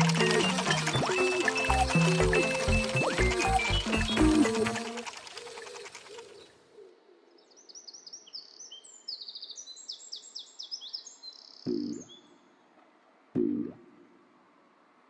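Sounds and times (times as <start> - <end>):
background music: 0.0 - 5.1
birds chirping: 0.0 - 6.6, 7.2 - 12.4.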